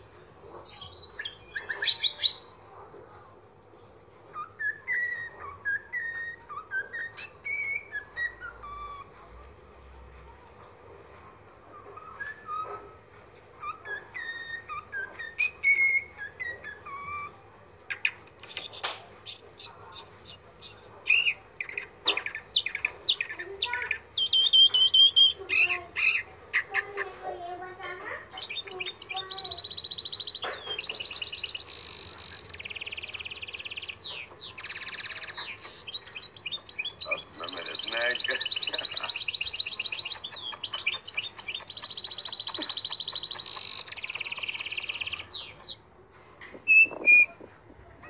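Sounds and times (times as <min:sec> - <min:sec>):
birds singing and calling: 0:00.0 - 0:09.7, 0:10.6 - 0:48.0
high-pitched bird chirps and trills: 0:00.5 - 0:02.6, 0:03.8 - 0:09.4, 0:11.1 - 0:45.8, 0:46.5 - 0:47.5
soft whistled bird notes: 0:04.3 - 0:09.4, 0:11.7 - 0:17.4, 0:28.4 - 0:45.8, 0:46.7 - 0:47.4.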